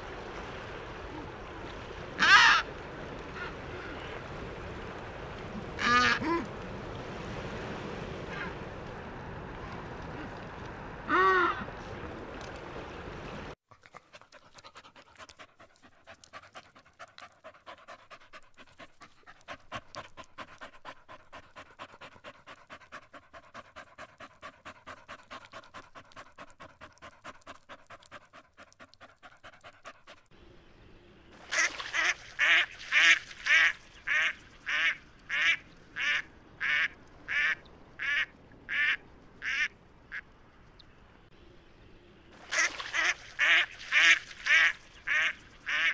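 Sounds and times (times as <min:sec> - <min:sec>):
dog panting: 0:13.7 - 0:30.3.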